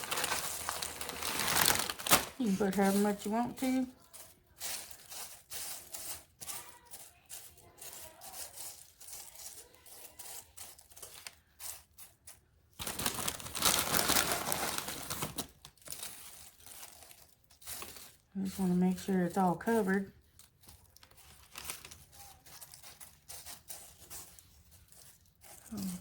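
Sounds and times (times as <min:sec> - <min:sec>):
corn chips being poured: 0:00.0 - 0:03.9, 0:12.8 - 0:18.3
plastic chip bag crinkling: 0:00.0 - 0:26.0.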